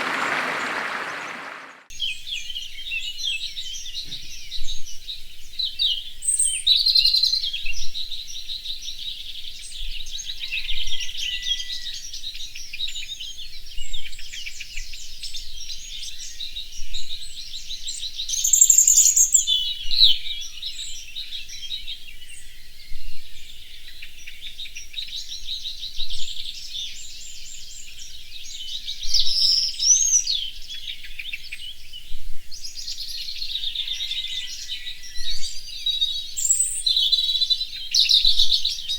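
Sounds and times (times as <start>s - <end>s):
chorus of songbirds: 0.0s - 1.9s, 17.4s - 38.9s.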